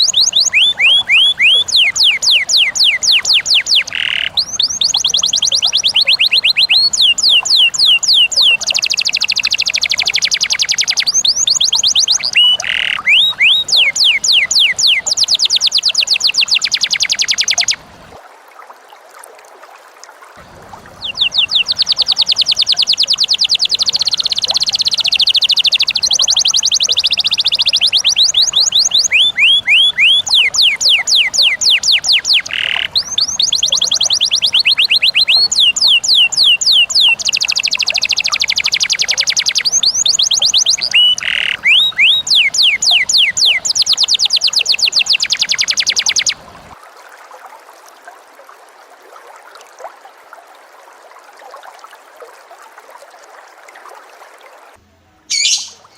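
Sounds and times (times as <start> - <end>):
lovebird chattering: 0.0 - 17.8, 20.9 - 46.5, 55.3 - 55.9.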